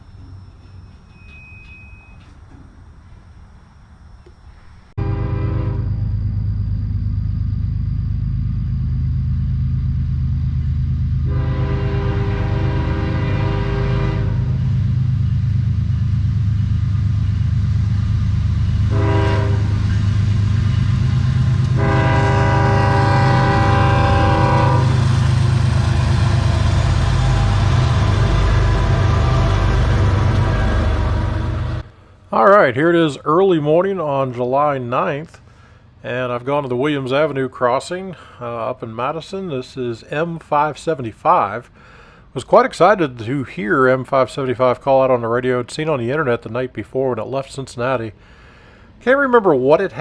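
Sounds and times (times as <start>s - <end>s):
diesel locomotives rumbling: 0.0s - 50.0s
train air horn: 5.0s - 6.1s, 11.2s - 14.8s, 18.8s - 20.4s, 21.5s - 31.9s.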